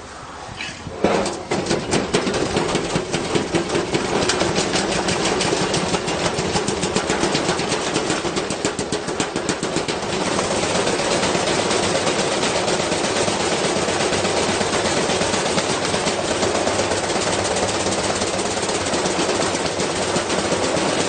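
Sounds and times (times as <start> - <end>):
washing machine humming: 0.9 - 21.0
object banging in washing machine drum: 1.0 - 10.2.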